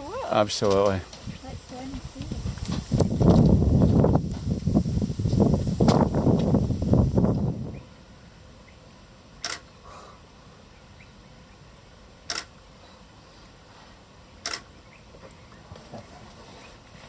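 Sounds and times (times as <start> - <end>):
camera shutter clicking: 9.4 - 9.6, 12.3 - 12.5, 14.4 - 14.6.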